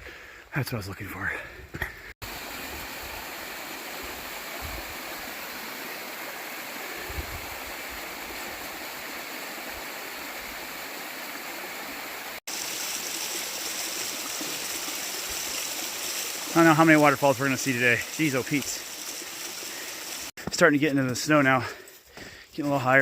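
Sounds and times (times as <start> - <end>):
rushing water: 2.1 - 20.4.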